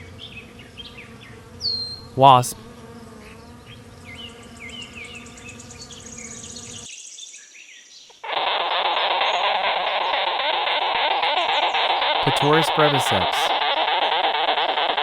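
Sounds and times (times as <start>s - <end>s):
wasp buzzing: 0.0s - 6.9s
small birds chirping: 0.0s - 8.2s.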